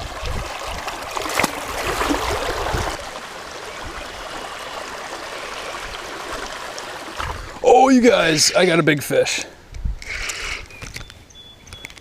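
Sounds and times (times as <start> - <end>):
creek water rushing over riffles: 0.0 - 9.0.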